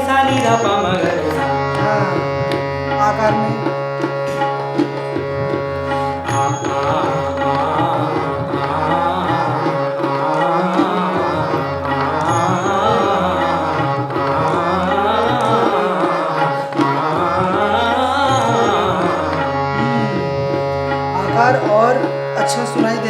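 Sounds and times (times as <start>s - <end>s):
tabla rhythm: 0.0s - 23.0s
person singing vowel patterns: 6.3s - 23.0s.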